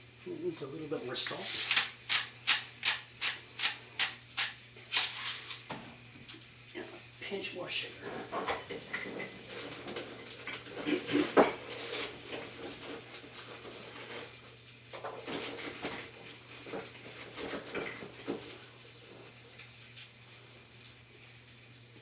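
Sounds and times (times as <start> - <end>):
spoon and pot clinking: 8.4 - 9.4.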